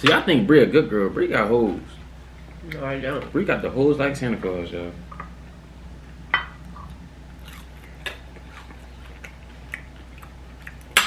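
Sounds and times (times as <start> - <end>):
low steady hum: 0.0 - 11.0
chewing and biting: 6.7 - 11.0.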